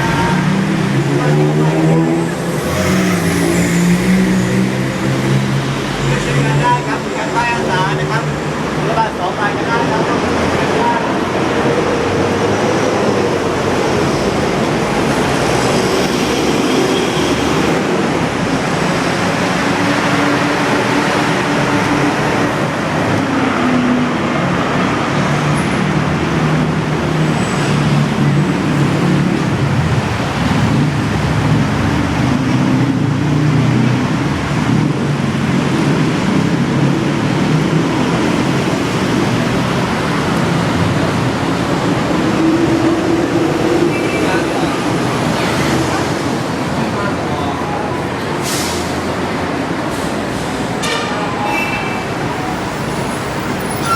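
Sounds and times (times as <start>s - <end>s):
train carriage rumble and rush: 0.0s - 53.9s.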